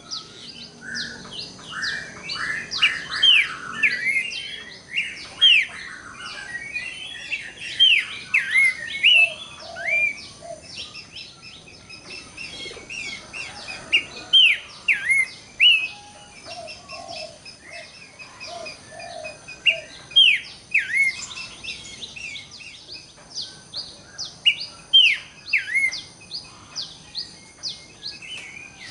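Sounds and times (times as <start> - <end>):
bird whistling calls: 0.0 - 11.2, 14.0 - 22.4, 24.2 - 26.7.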